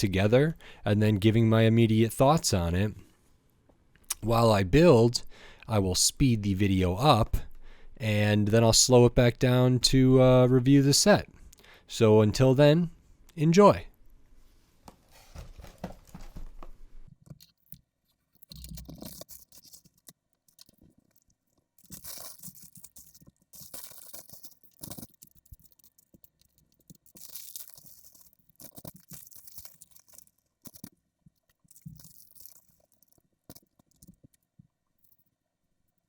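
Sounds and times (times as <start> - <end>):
plastic bags crinkling and tearing: 21.8 - 30.9.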